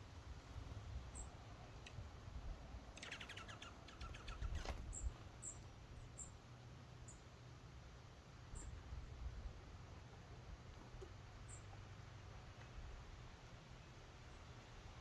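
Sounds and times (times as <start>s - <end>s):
bird rapid trill: 3.0s - 5.6s
songbird chip notes: 3.0s - 5.6s.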